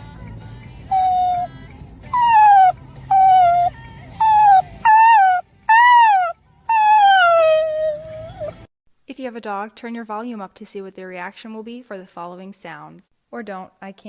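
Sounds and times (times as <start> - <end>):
dog whimpering: 0.8 - 8.7.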